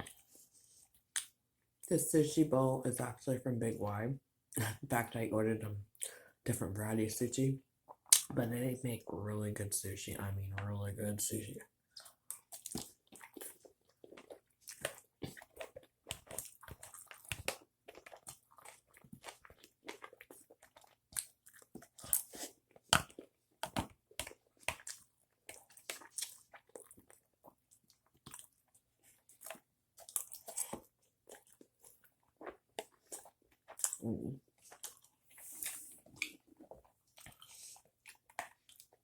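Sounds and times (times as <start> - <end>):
person chewing and eating: 0.0 - 1.4, 11.8 - 39.0.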